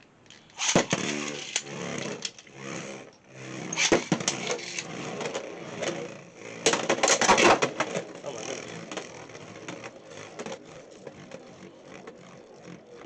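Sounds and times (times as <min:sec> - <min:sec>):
spinning tops whirring: 0:00.0 - 0:13.0
sharp plastic clacks: 0:00.2 - 0:02.5.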